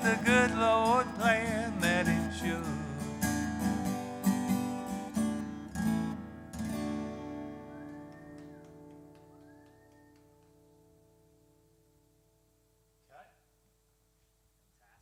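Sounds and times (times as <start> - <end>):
acoustic guitar strumming: 0.0 - 9.1.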